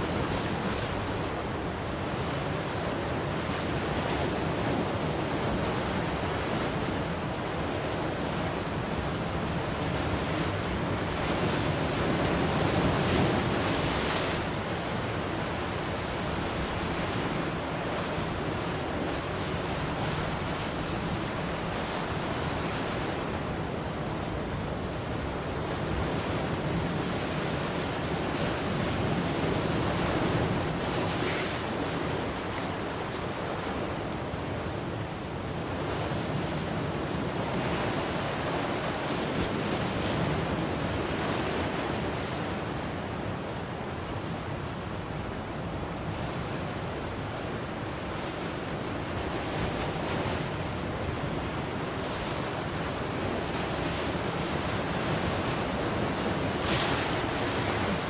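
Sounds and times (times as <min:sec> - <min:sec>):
ocean waves breaking: 0:44.6 - 0:58.0.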